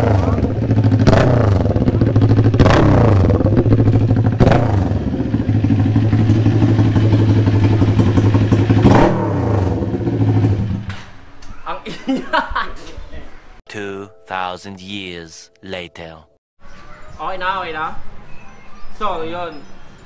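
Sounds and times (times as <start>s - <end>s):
motorcycle engine idling and revving: 0.0s - 11.2s.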